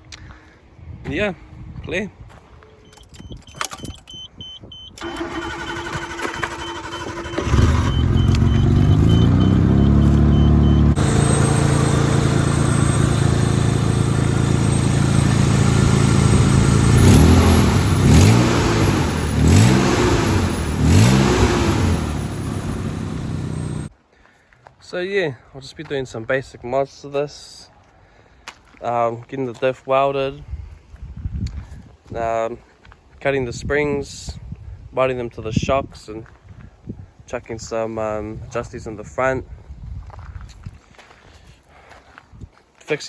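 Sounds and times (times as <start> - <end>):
starter motor cranking: 5.0 - 23.9
car engine idling: 6.5 - 23.9
car engine revving: 7.1 - 23.9.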